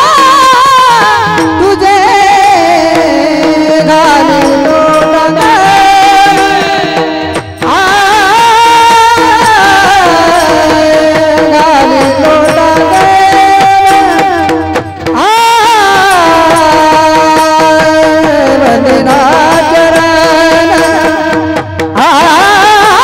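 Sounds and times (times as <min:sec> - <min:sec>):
devotional singing: 0:00.0 - 0:23.0
instrumental accompaniment: 0:00.0 - 0:23.0
percussion: 0:00.0 - 0:23.0.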